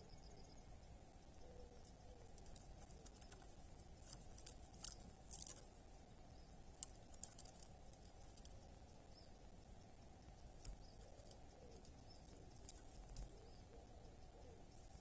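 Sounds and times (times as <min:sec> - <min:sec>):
faint crisp clicks and crunches: 0:01.8 - 0:05.7, 0:06.7 - 0:08.6, 0:10.6 - 0:13.4.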